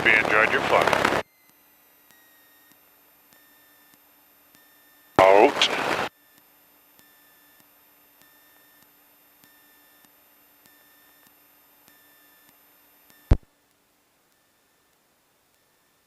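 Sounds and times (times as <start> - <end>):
light ticks: 8.8 - 16.0.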